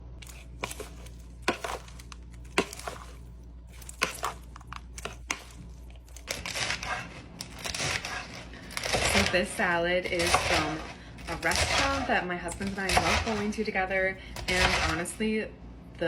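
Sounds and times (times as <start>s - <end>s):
crinkling crunching rustle: 0.2s - 9.4s.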